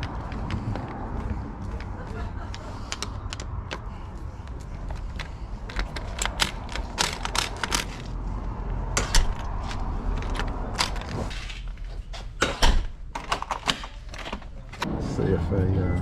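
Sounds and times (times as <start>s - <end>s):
tools and metal hardware clicking: 5.1s - 8.1s.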